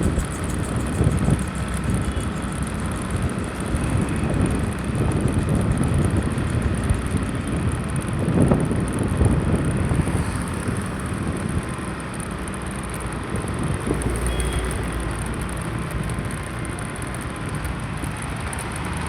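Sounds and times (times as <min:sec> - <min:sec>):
road vehicle noise: 0:00.0 - 0:19.0
wind rumbling on microphone: 0:00.0 - 0:19.0.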